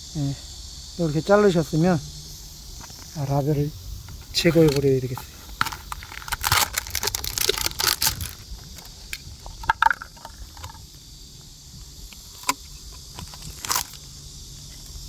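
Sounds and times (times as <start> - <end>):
plastic bottle crackling: 4.1 - 10.9, 12.1 - 14.0.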